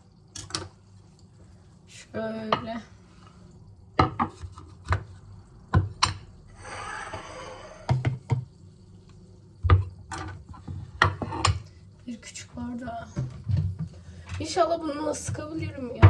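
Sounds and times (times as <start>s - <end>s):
knocks and thuds on counter: 7.9s - 8.5s, 9.6s - 9.9s.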